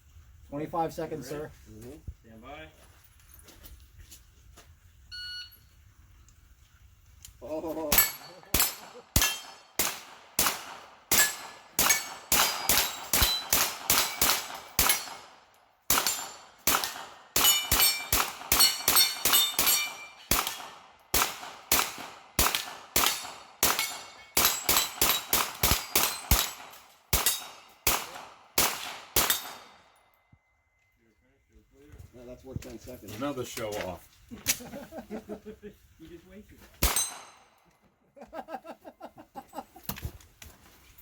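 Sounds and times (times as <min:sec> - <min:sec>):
steel target plates ringing: 0:07.9 - 0:09.8, 0:11.1 - 0:15.3, 0:15.9 - 0:20.5, 0:23.0 - 0:27.8, 0:36.9 - 0:37.4
rapid gunshots: 0:08.0 - 0:15.3, 0:15.9 - 0:29.7.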